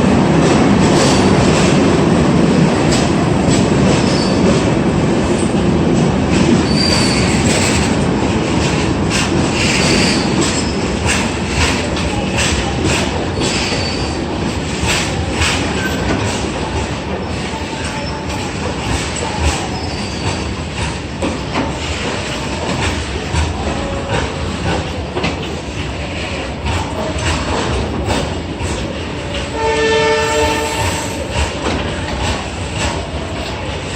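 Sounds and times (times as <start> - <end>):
train rolling past: 0.0 - 33.9
wheel squeals: 6.6 - 7.9, 13.4 - 14.2
train horn: 29.4 - 31.3.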